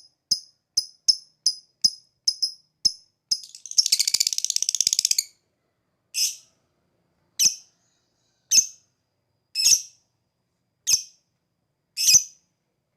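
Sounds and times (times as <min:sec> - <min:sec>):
lovebird rattling trill: 0:00.0 - 0:05.3.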